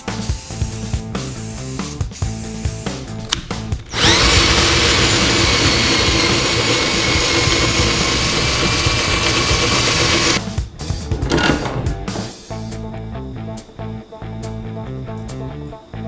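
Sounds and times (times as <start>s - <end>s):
power tool whining: 3.2s - 12.7s.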